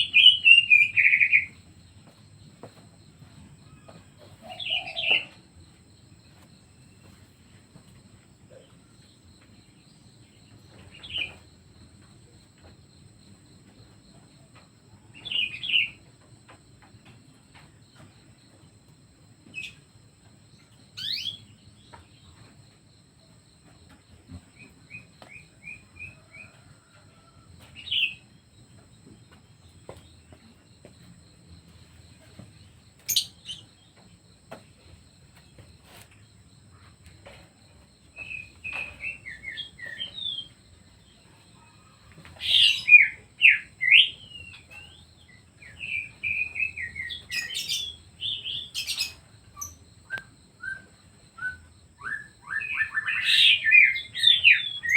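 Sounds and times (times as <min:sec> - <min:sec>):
songbirds chirping: 0:00.0 - 0:54.9.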